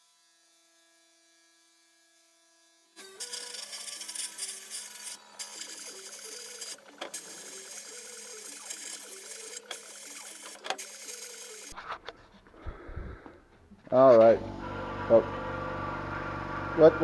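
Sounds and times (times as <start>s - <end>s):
sandblasting gun hissing: 3.1s - 11.8s
steady hum: 14.2s - 17.0s.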